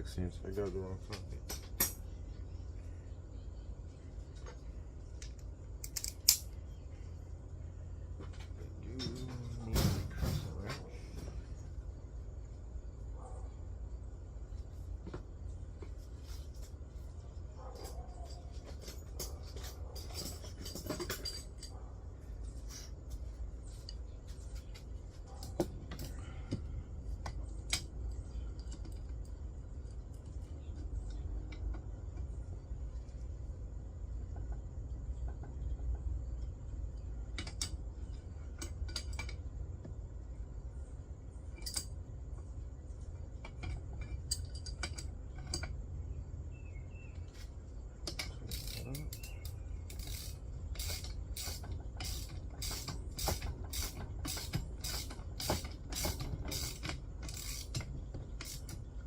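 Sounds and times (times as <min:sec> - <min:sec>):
metallic clicks of wrench and bolts: 0:05.2 - 0:06.6, 0:37.3 - 0:37.8, 0:38.6 - 0:39.5, 0:41.5 - 0:42.0, 0:43.4 - 0:45.8, 0:48.0 - 0:58.9.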